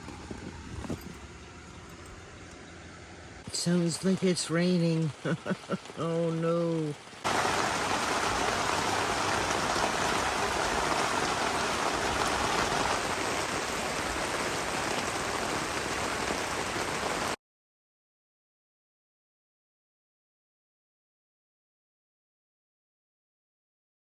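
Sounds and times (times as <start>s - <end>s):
steady rain falling: 3.4s - 17.4s.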